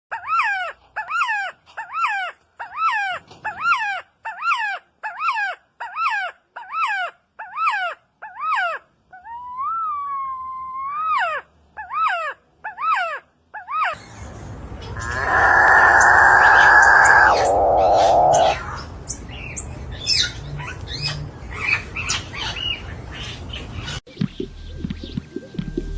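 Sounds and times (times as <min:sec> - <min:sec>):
bird calling: 0:15.0 - 0:18.8.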